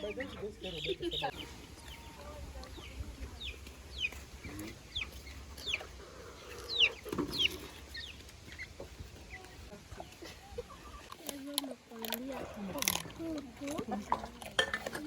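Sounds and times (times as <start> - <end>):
chickens peeping: 0.0 - 11.2.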